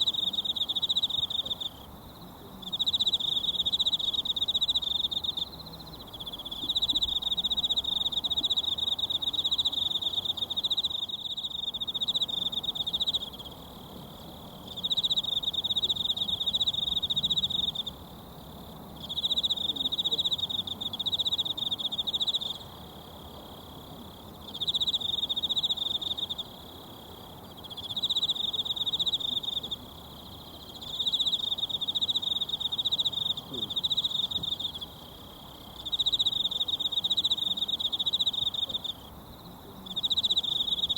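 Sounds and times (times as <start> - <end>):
insect trilling: 27.6 - 39.2, 39.8 - 40.9.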